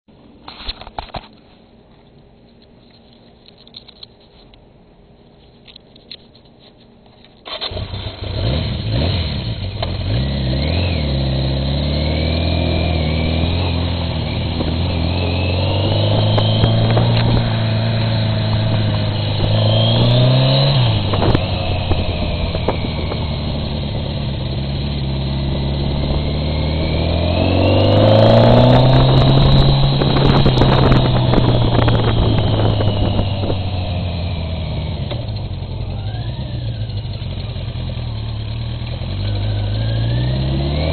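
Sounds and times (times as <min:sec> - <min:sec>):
motorcycle engine accelerating: 0:07.5 - 0:40.9
wind rushing over camera: 0:12.8 - 0:34.6.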